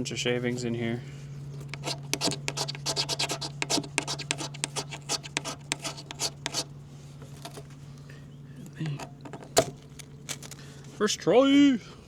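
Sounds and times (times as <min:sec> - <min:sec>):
steady low hum: 0:00.0 - 0:12.0
knife blade scraping: 0:01.6 - 0:06.7.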